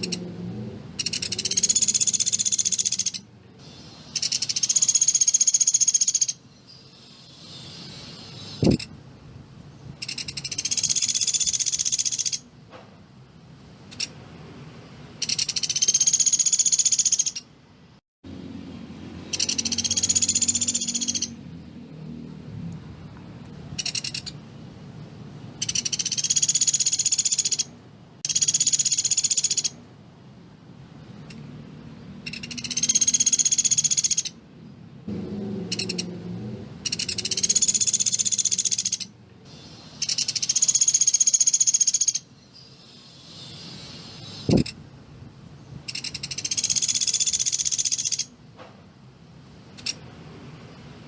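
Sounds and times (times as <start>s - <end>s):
bird rattling trills: 1.0s - 6.4s, 9.9s - 12.5s, 15.2s - 17.5s, 19.3s - 21.4s, 23.8s - 24.4s, 25.6s - 29.8s, 32.2s - 34.4s, 36.8s - 44.8s, 45.9s - 48.3s.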